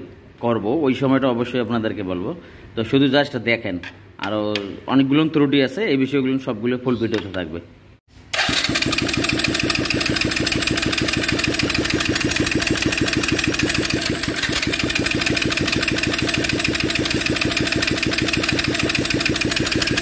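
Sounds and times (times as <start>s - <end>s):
motorcycle engine idling: 8.5s - 20.0s.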